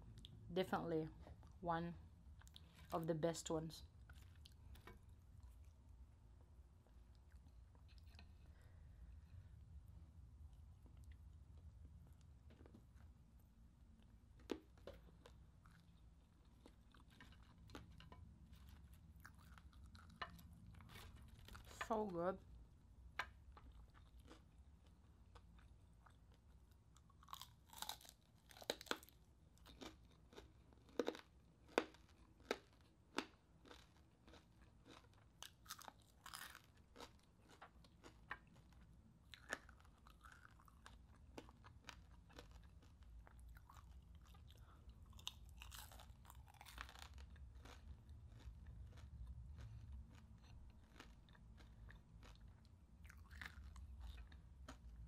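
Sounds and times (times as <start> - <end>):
crunching and chewing crispy food: 2.4 - 3.1, 3.8 - 6.0, 6.8 - 9.4, 10.4 - 22.5, 23.2 - 55.0.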